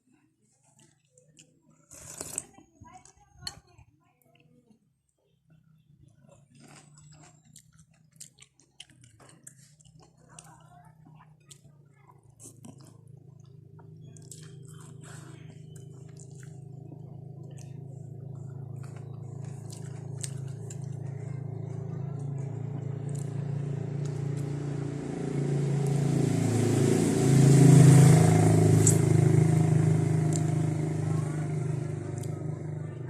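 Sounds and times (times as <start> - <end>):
vehicle engine hum approaching: 11.6 - 33.0
eating clicks: 12.4 - 22.3.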